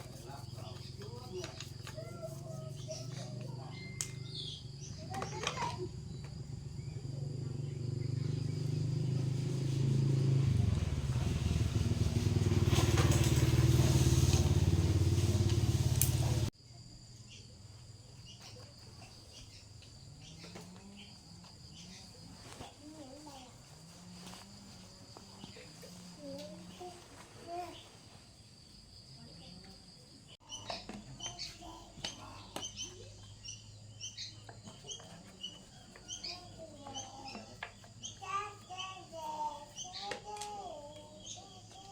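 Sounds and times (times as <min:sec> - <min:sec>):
bird chirping: 0:00.0 - 0:09.6, 0:17.2 - 0:22.3, 0:30.4 - 0:41.8
diesel engine running: 0:06.6 - 0:16.5.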